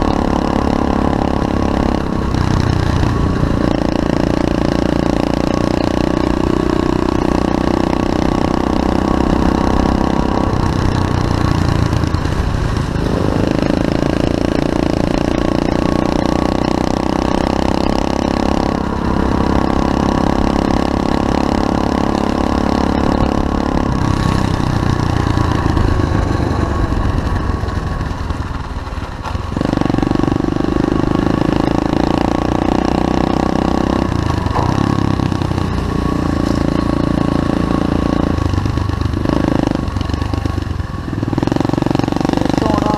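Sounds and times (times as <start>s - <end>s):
motorbike engine revving: 0.0s - 42.9s.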